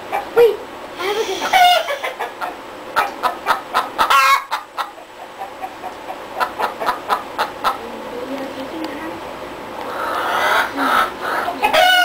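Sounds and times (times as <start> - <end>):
chicken clucking: 1.2 - 7.9, 9.8 - 12.0.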